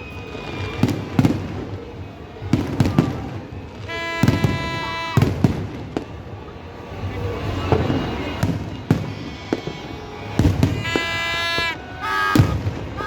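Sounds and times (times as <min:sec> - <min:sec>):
fireworks bangs: 0:00.1 - 0:06.4, 0:07.4 - 0:13.0
horn-like tone: 0:03.9 - 0:05.2, 0:10.7 - 0:13.0.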